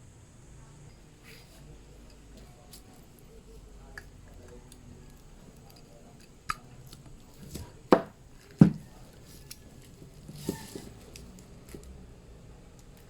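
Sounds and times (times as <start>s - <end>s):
hard objects knocking and clicking: 3.9s - 12.0s.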